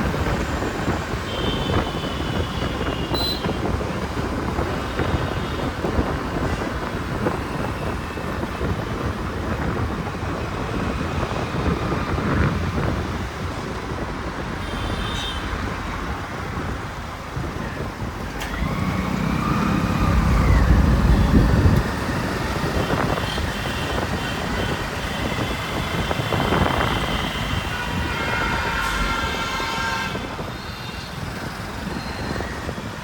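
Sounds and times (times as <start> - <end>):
road noise: 0.0 - 33.0
short horn beeps: 3.0 - 3.6
large vehicle passing: 18.4 - 22.8
long horn: 22.8 - 30.6.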